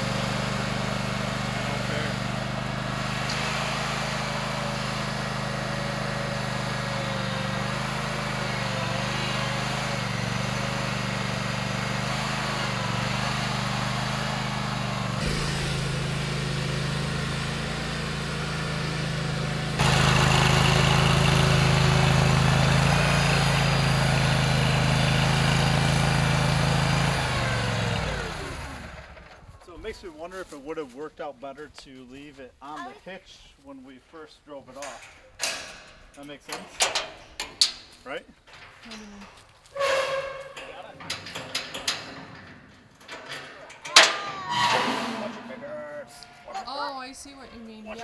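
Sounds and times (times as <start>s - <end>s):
stump grinder engine running: 0.0s - 29.8s, 44.5s - 48.0s.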